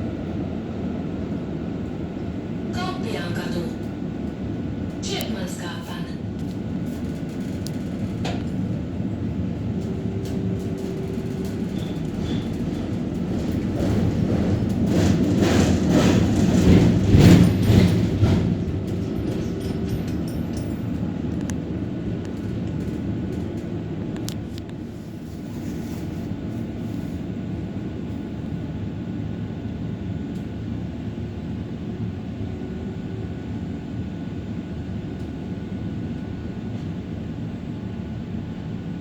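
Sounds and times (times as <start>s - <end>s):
tram rumbling on rails: 0.0s - 39.0s
clatter over the track: 6.4s - 21.6s, 22.2s - 24.8s.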